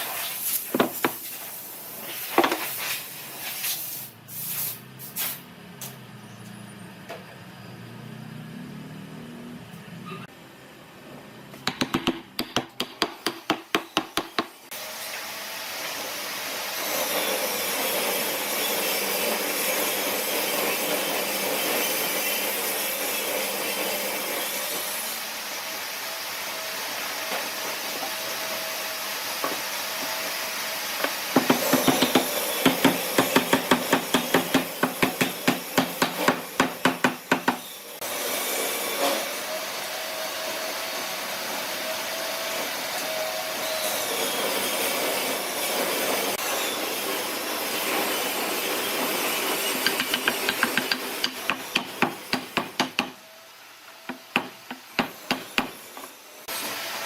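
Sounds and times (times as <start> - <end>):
rapid strokes on wood: 49.7 - 53.1.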